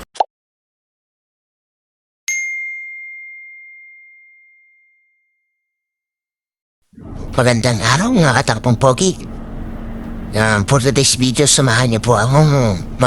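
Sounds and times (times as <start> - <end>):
bell-like ding: 2.3 - 5.8.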